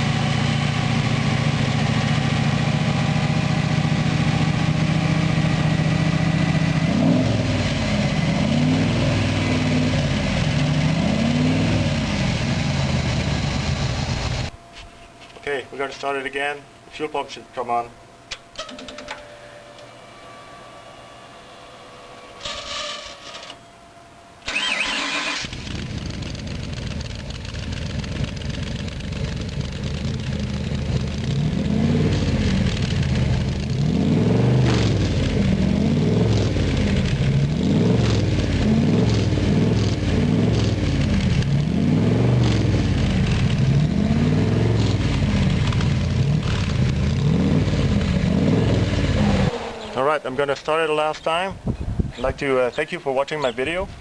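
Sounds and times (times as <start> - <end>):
car engine cranking and idling: 0.0 - 14.5, 24.4 - 51.3.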